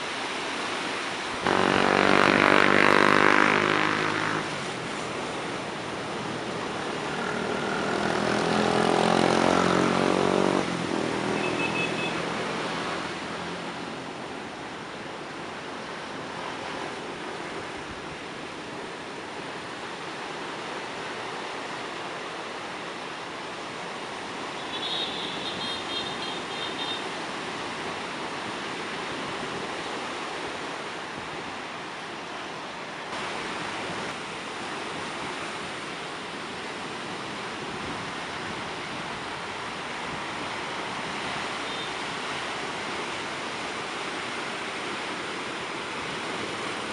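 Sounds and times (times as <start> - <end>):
rough surf: 0.0 - 46.9
wind: 0.0 - 46.9
vehicle engine passing: 1.4 - 13.8.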